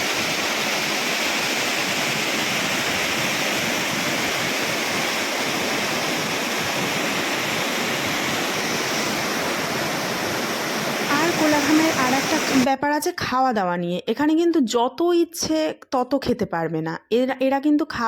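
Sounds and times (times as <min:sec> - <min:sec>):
waterfall rushing: 0:00.0 - 0:12.7.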